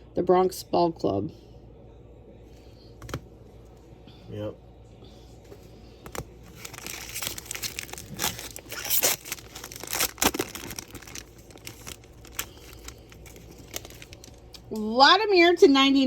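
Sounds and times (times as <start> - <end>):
wrapper crinkling and tearing: 6.2 - 14.7.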